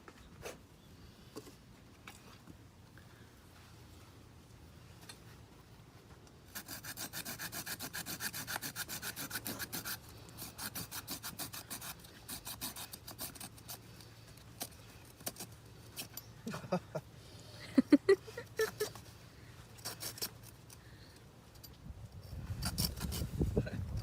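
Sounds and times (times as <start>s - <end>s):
hand saw cutting wood: 6.5s - 16.2s, 19.8s - 20.6s, 22.5s - 23.4s.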